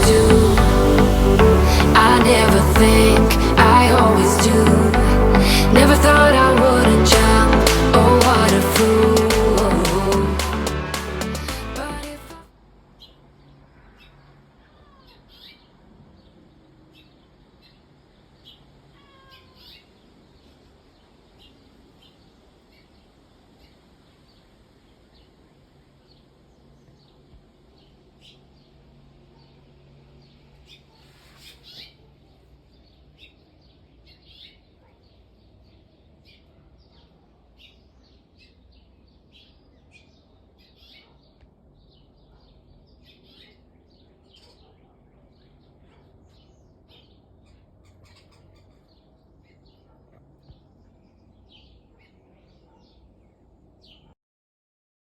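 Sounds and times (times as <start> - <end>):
low outdoor background: 0.0 - 54.2
faint birdsong: 12.9 - 54.2.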